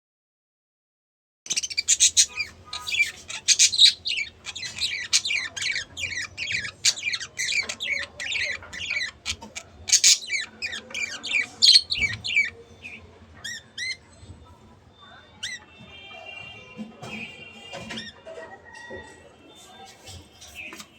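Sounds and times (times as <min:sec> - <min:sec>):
budgerigars chattering: 0:01.5 - 0:14.2.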